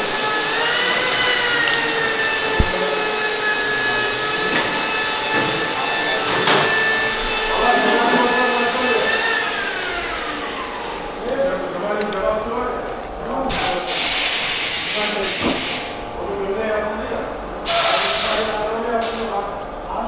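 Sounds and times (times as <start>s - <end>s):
power tool motor whining: 0.0s - 3.5s
click: 2.6s - 2.8s
short knock: 2.6s - 2.8s.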